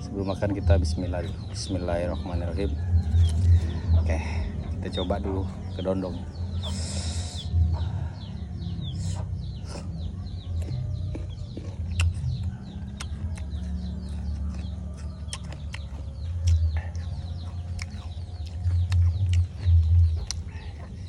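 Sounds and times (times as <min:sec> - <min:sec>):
chickens chirping: 0:00.0 - 0:21.0
low rumble: 0:02.5 - 0:21.0
crunchy bites and chewing: 0:02.7 - 0:03.8, 0:09.0 - 0:21.0.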